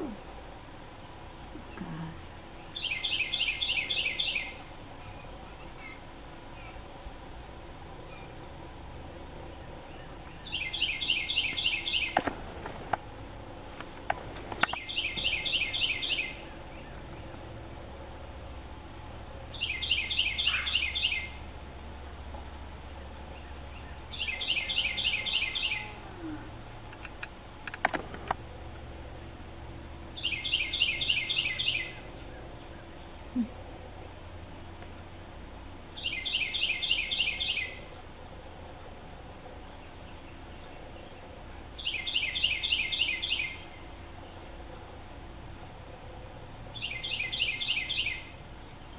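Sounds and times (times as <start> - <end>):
bird chattering call: 19.6 - 21.3.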